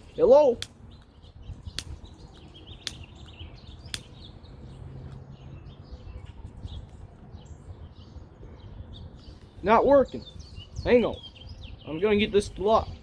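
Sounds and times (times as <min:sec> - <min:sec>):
lighter clicking: 0:02.8 - 0:04.3.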